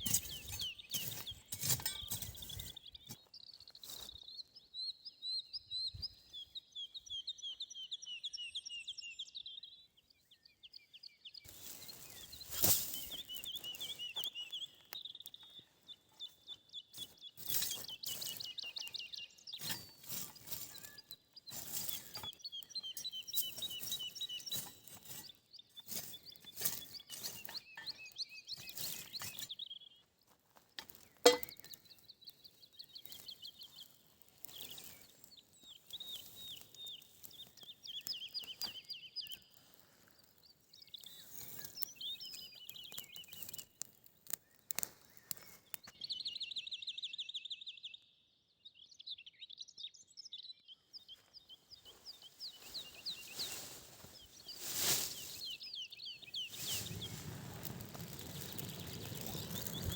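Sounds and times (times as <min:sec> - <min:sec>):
songbirds trilling: 0:00.0 - 0:30.1, 0:30.8 - 0:47.6, 0:49.4 - 0:59.9
clicks and crackles: 0:30.5 - 0:46.0, 0:56.3 - 0:59.9.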